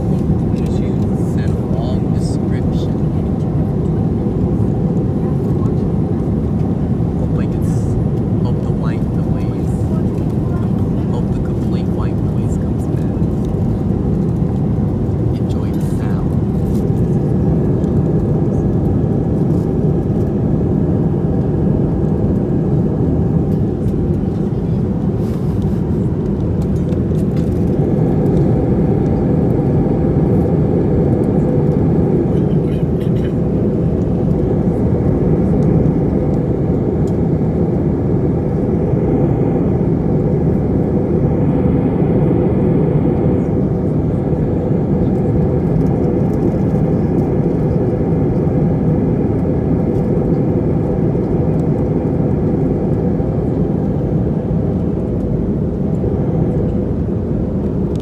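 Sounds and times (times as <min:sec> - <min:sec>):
jet engine roar in cabin: 0:00.0 - 0:58.0.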